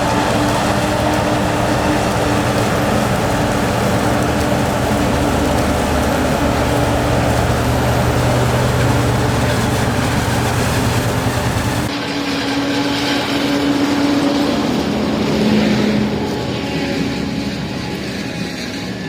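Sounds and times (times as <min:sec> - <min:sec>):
diesel machinery engine drone: 0:00.0 - 0:11.9.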